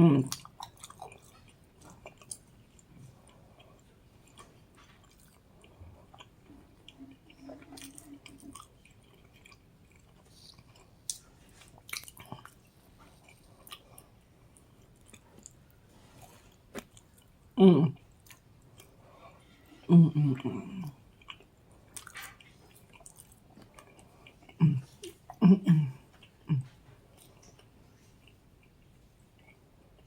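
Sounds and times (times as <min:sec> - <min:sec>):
low hummed voice: 0:00.0 - 0:00.4, 0:17.6 - 0:18.0, 0:19.6 - 0:21.0, 0:24.6 - 0:26.8
person chewing food: 0:00.3 - 0:30.0.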